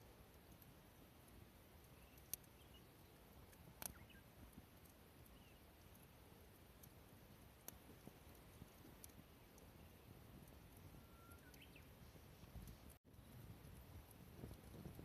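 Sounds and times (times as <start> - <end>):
faint sharp clicks: 1.8 - 2.8, 3.5 - 4.2, 7.6 - 9.7, 10.4 - 13.0
faint high chirps: 10.7 - 12.2.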